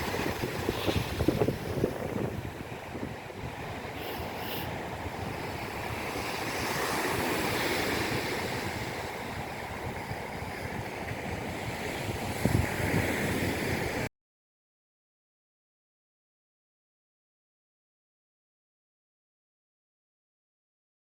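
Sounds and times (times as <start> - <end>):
steady rushing noise: 0.0 - 14.1.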